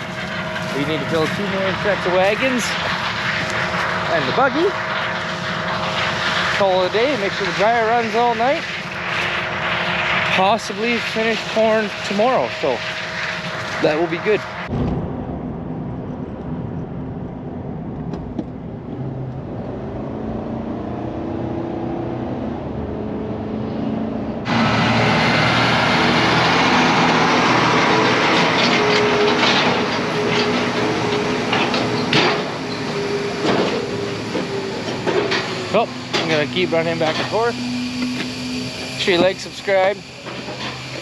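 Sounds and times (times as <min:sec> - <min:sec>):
farm machinery engine running: 0:00.0 - 0:14.7, 0:24.4 - 0:41.0
machinery hum: 0:00.0 - 0:21.2, 0:22.0 - 0:41.0.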